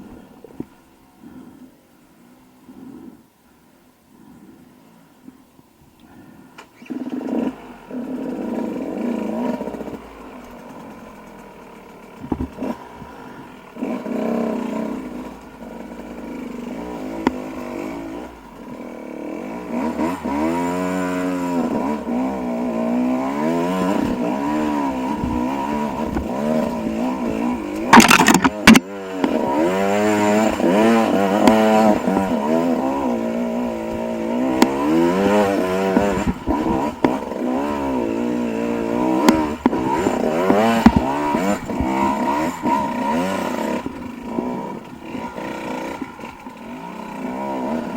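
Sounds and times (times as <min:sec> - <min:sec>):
dirt bike engine revving: 0:06.8 - 0:47.9.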